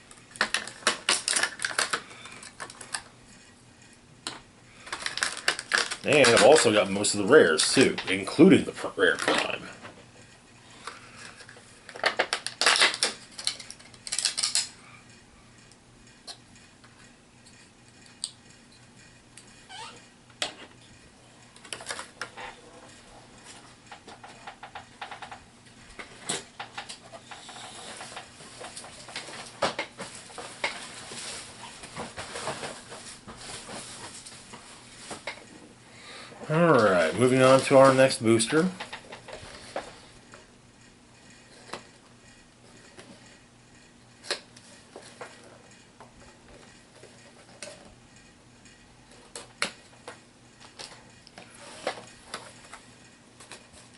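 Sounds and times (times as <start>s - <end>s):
plastic packaging rustling: 0.0s - 3.1s, 4.8s - 9.7s, 11.0s - 14.7s, 26.1s - 35.5s, 36.5s - 40.1s
plastic pieces clicking: 0.3s - 3.1s, 4.2s - 6.8s, 10.8s - 14.8s.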